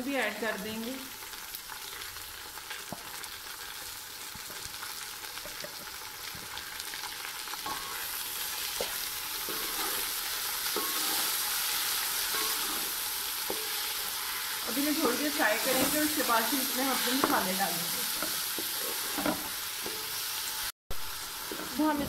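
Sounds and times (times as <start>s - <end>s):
food sizzling in a pot: 0.0s - 22.0s.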